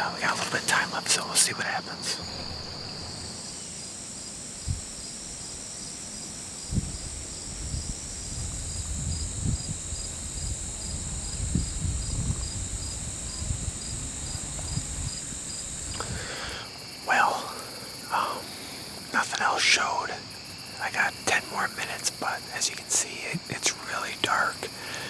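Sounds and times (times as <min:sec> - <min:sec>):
crickets chirping: 0:00.0 - 0:25.0
low rumbles and bumps: 0:07.7 - 0:16.2.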